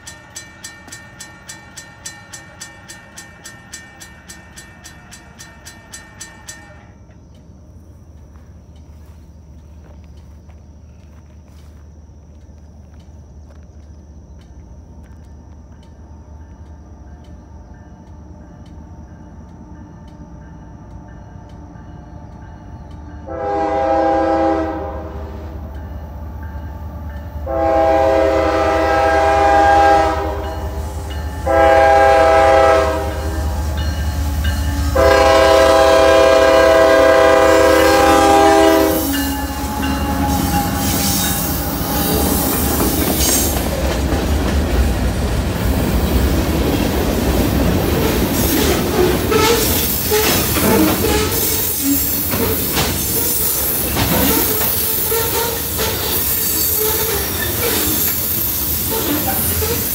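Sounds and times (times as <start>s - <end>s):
train wheels clacking on rails: 0.0s - 11.2s, 25.4s - 59.9s
locomotive engines rumbling: 0.0s - 59.9s
train horn blasts: 21.5s - 43.6s.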